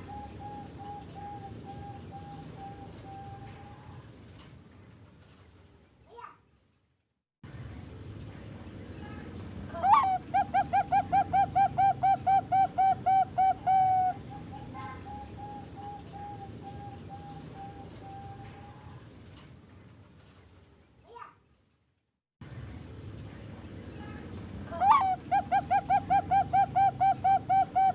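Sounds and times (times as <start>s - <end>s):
dove cooing: 0.0s - 4.0s, 9.8s - 18.9s, 24.7s - 27.9s.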